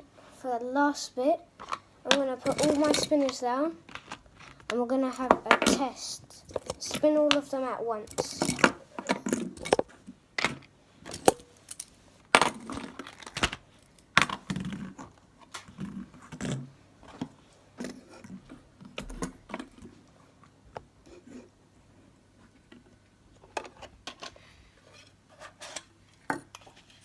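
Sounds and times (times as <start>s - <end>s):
fidget spinners clicking on hard surface: 8.1s - 8.7s.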